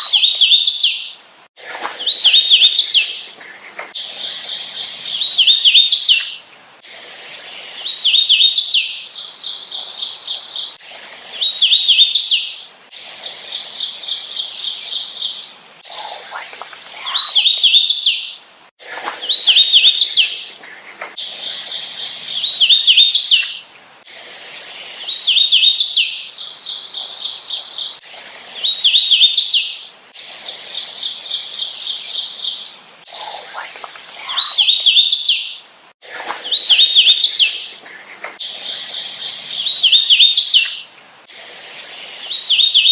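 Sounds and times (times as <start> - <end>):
warbler whistled song: 0.0 - 1.2, 1.9 - 3.4, 4.0 - 6.5, 7.6 - 12.7, 13.3 - 16.1, 17.0 - 18.4, 19.2 - 20.6, 21.2 - 23.7, 24.8 - 29.9, 30.8 - 35.7, 36.4 - 37.8, 38.4 - 40.9, 42.1 - 42.9.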